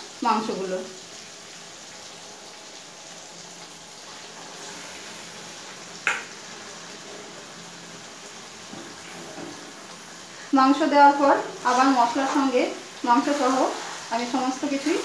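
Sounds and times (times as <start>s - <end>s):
masala frying with low sizzle: 0.0s - 15.0s.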